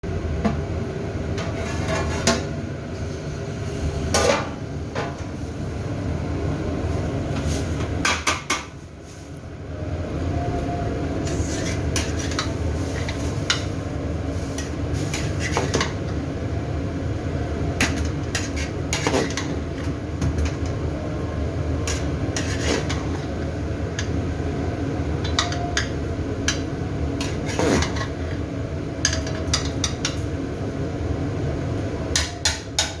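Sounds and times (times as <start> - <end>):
steady low hum: 8.8 - 33.0.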